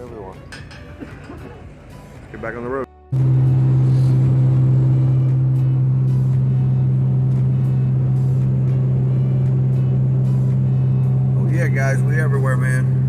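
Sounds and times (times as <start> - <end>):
car engine and road drone: 3.1 - 13.0.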